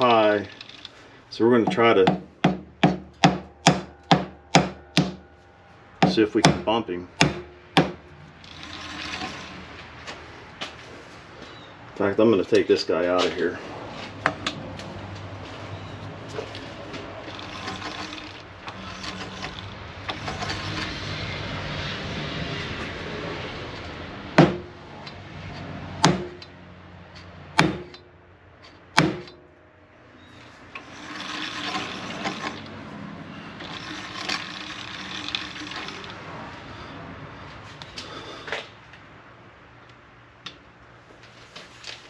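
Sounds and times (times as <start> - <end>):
sharp knocks on metal housing: 1.7 - 5.2, 6.0 - 8.0.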